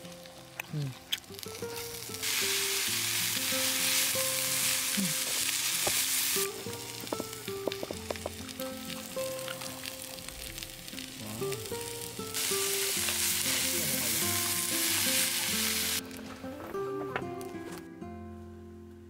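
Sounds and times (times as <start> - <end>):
meat sizzling in a pan: 0.0 - 16.1
chopsticks clicking against pan: 7.0 - 9.9.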